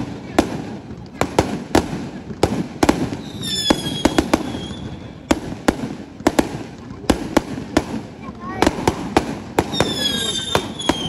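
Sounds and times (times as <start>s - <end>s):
fireworks bangs: 0.0s - 11.0s
firework whistle: 3.2s - 5.3s, 9.7s - 11.0s.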